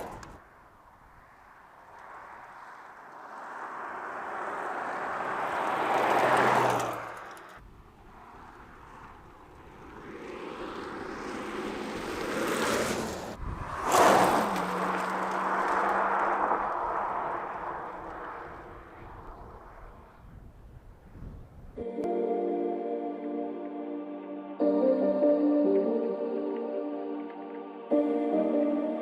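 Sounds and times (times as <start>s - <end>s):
car driving past: 1.2s - 20.2s.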